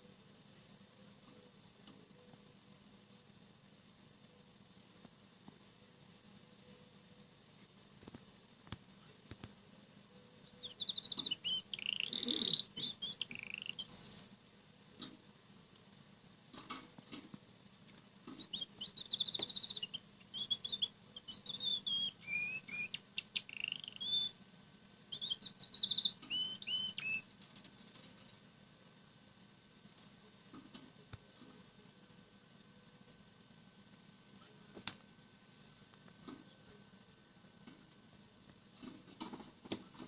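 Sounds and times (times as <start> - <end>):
canary singing trills: 10.1 - 14.4, 18.2 - 24.4, 25.1 - 27.3.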